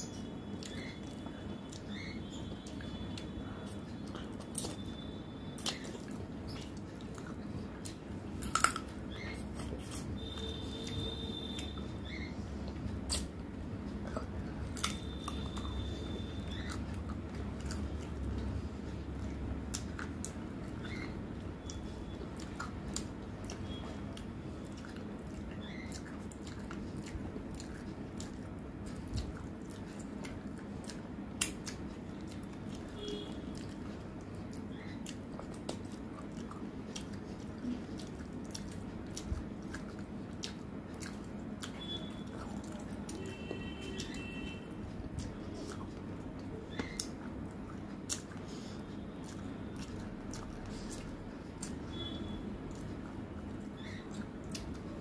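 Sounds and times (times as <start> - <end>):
person chewing food: 0.0 - 55.0
mouth clicks and smacks: 5.6 - 11.9, 12.7 - 33.0, 45.0 - 55.0.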